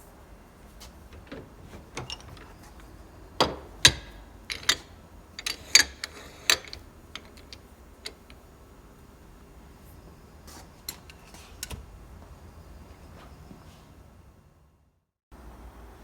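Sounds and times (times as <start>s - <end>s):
metal vise parts clinking: 1.2s - 8.4s.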